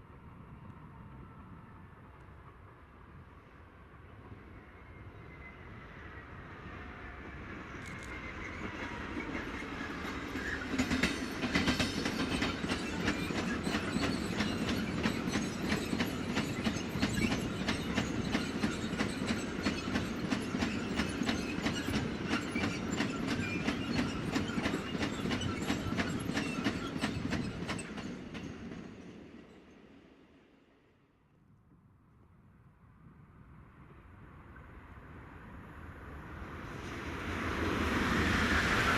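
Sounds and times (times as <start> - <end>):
train rumble: 5.8 - 29.6
train wheels clicking over rail joints: 9.3 - 28.8.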